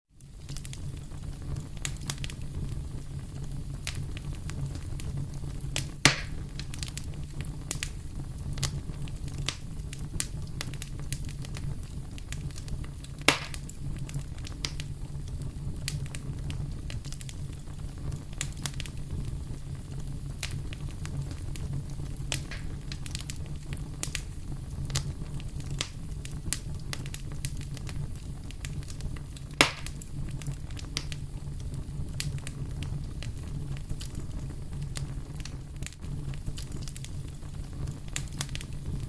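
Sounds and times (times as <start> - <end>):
fire crackling: 0.1 - 39.0
fire flames rumbling: 0.1 - 39.0
fire popping: 0.2 - 39.0.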